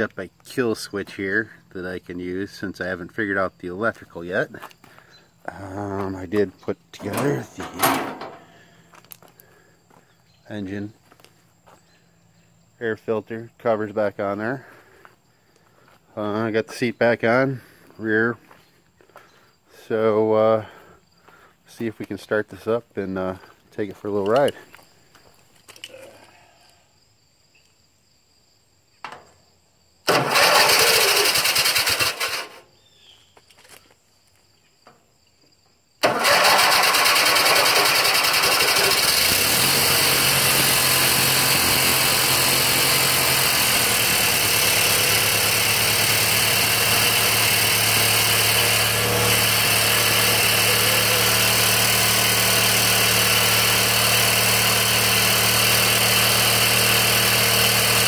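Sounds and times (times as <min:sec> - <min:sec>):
engine starter cranking: 0:07.0 - 0:08.7, 0:30.1 - 0:32.6, 0:36.0 - 0:58.0
engine idling: 0:30.1 - 0:32.6, 0:36.0 - 0:58.0.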